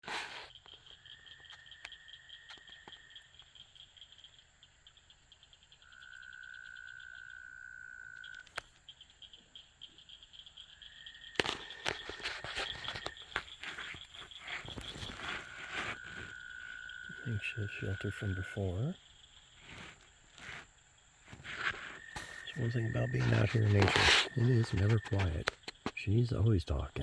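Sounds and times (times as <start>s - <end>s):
fast pulsing insect chirp: 0.5s - 27.0s
frog trills: 1.0s - 19.8s, 21.6s - 27.0s
clicking and rustling: 11.4s - 16.4s
sharp clicks: 22.1s - 27.0s.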